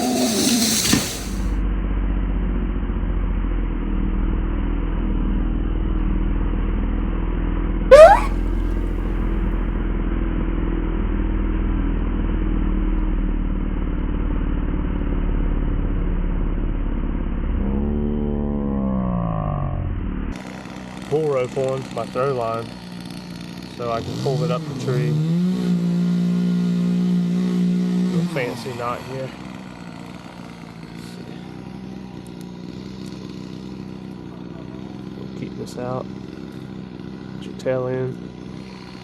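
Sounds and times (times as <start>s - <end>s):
upward pitch sweep: 7.9s - 8.4s.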